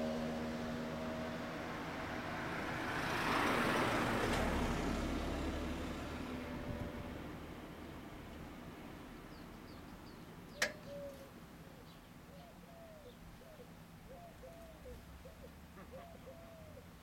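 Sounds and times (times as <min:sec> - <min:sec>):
birds chirping: 0:09.3 - 0:17.0
sharp click: 0:10.6 - 0:10.9.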